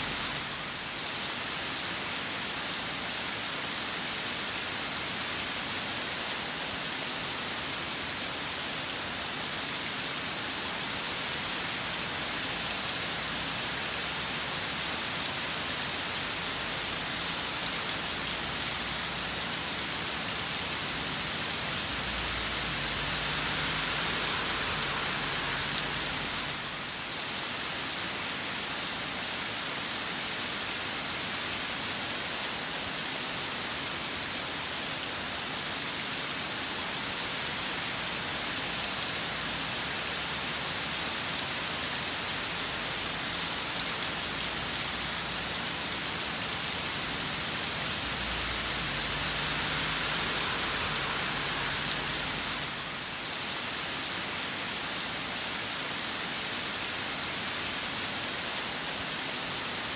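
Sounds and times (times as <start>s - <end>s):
heavy rain hissing: 0.0s - 59.9s.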